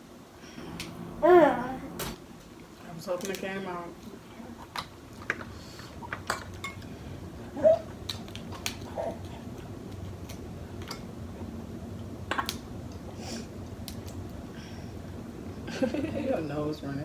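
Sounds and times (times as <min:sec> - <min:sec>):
utensils and dishes clinking: 0:06.1 - 0:06.9.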